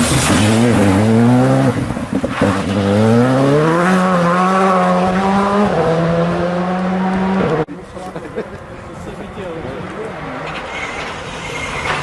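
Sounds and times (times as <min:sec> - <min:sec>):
rally car engine accelerating: 0:00.0 - 0:07.7.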